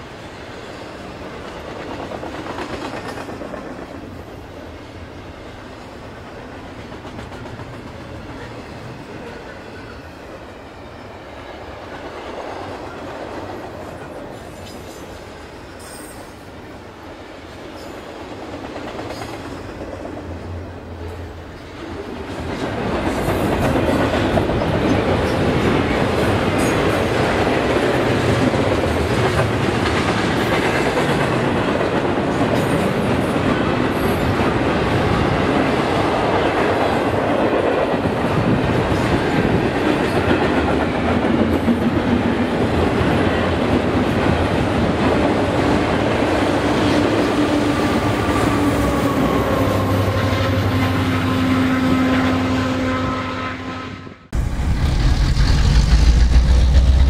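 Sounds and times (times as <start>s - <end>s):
freight train wheels rolling: 54.4s - 57.0s.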